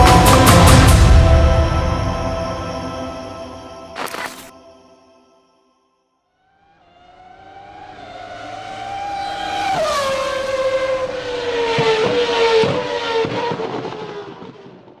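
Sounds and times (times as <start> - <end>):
race car engine passing: 6.8 - 14.5.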